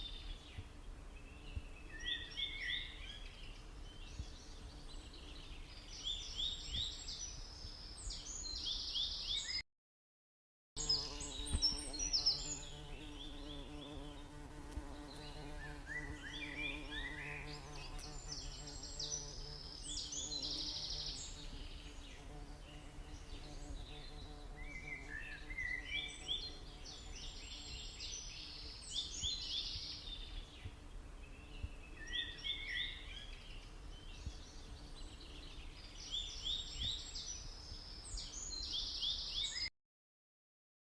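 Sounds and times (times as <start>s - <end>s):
insect buzz: 10.8s - 39.6s.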